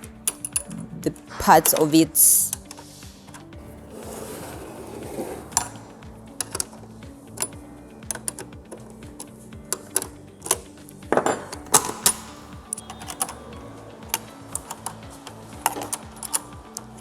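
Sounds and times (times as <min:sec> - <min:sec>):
hand tools clicking on metal: 0:00.0 - 0:03.5, 0:06.4 - 0:06.8, 0:07.4 - 0:10.7, 0:11.4 - 0:13.4, 0:14.1 - 0:17.0
background music: 0:00.0 - 0:17.0.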